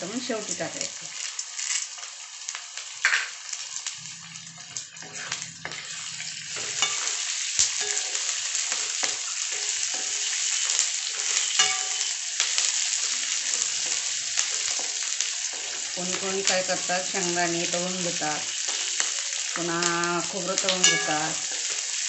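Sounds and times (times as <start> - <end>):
food sizzling in hot oil: 0.0 - 22.0
wooden spatula scraping pan: 4.6 - 7.2.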